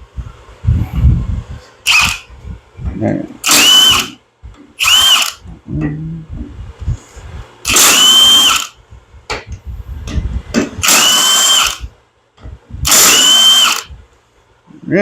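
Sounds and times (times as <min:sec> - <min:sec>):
power driver whirring: 0:01.8 - 0:02.3, 0:03.4 - 0:04.2, 0:04.8 - 0:05.6, 0:07.6 - 0:08.8, 0:10.6 - 0:11.9, 0:12.8 - 0:14.0.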